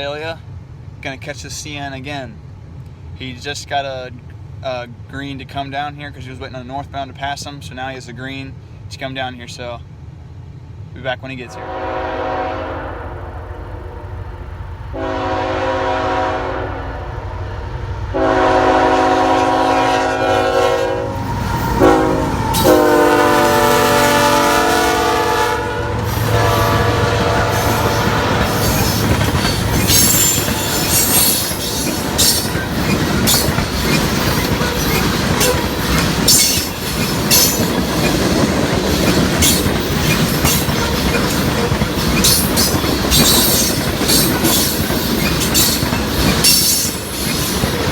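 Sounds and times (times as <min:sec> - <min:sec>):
train horn blasts: 0:11.5 - 0:31.5
locomotives passing: 0:11.5 - 0:47.9
train wheels clickety-clack: 0:25.9 - 0:47.9
wheel squeal: 0:27.5 - 0:47.9.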